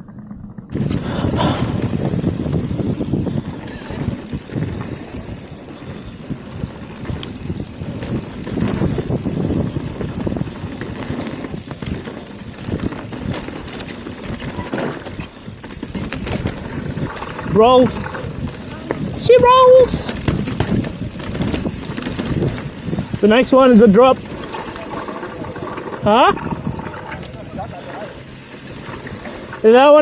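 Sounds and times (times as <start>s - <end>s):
bike rattling over bumps: 0.0s - 30.0s
tyres rolling over dirt and rocks: 0.0s - 30.0s
wind buffeting microphone: 0.0s - 30.0s.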